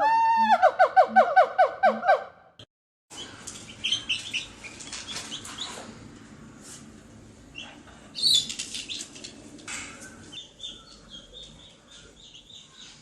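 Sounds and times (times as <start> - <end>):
birds chirping: 3.1 - 5.9, 9.8 - 13.0.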